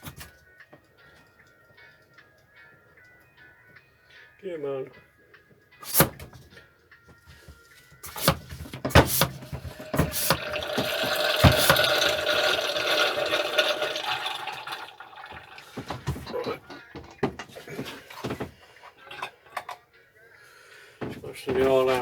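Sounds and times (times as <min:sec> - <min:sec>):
knocks: 0:08.2 - 0:12.0
oil pouring into a container: 0:09.2 - 0:16.3.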